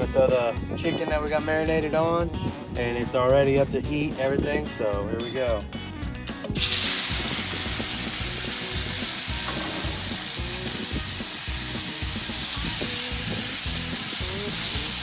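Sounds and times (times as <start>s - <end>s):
chicken sizzling on a griddle: 6.5s - 15.0s.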